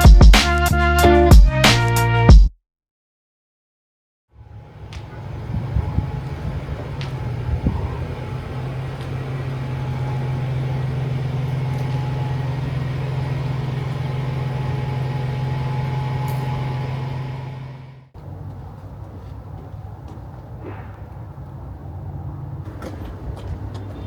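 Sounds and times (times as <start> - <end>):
vehicle engine humming: 4.4 - 24.0.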